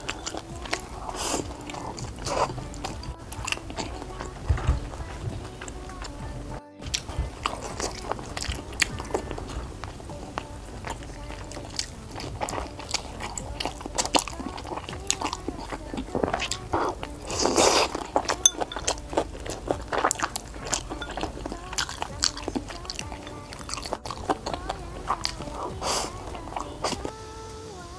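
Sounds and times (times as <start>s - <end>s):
person biting and chewing: 6.9s - 27.1s.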